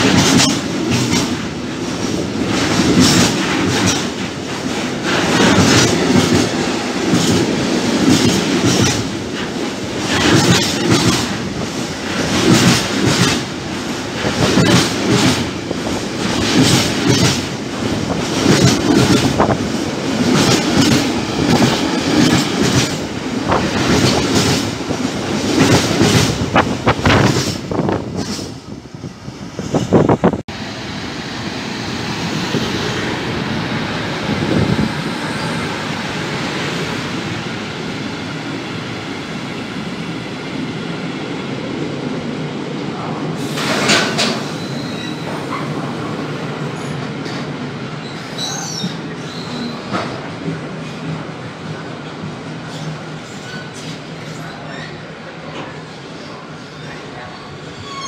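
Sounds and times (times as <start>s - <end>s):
freight train wheels clattering: 0.0s - 28.7s, 43.4s - 46.2s.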